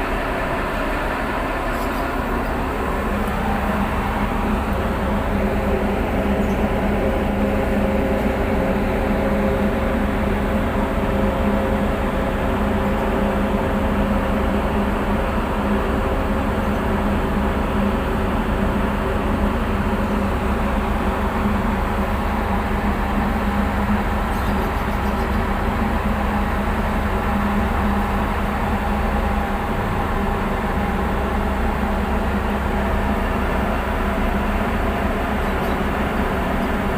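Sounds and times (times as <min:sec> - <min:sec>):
boat diesel engines droning: 0:00.0 - 0:36.9.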